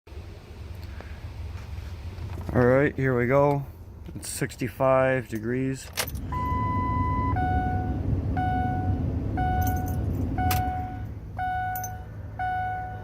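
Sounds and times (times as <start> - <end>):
diesel engine running rough: 6.1 - 13.0
dashboard warning chime: 6.2 - 13.0.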